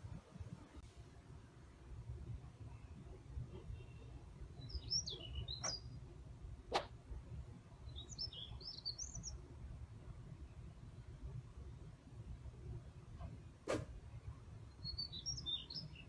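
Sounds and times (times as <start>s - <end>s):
songbird warbling: 4.6s - 6.0s.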